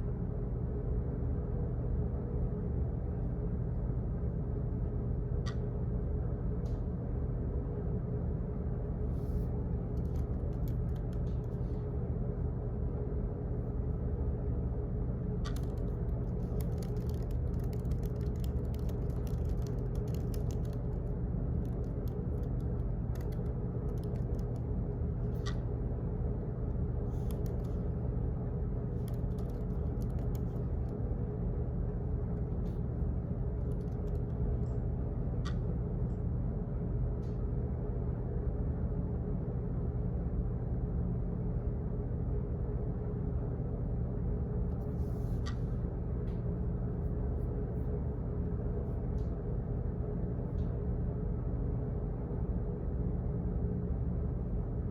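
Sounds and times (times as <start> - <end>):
low hum and rumble: 0.0 - 54.9
faint clicks: 15.4 - 24.7.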